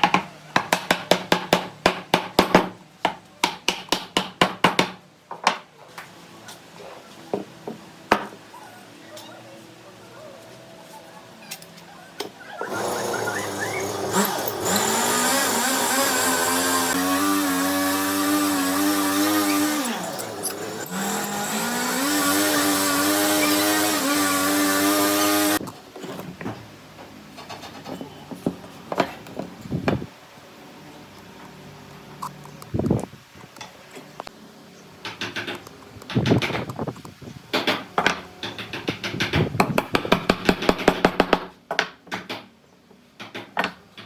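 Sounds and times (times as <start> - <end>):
power tool motor whining: 12.6 - 25.6.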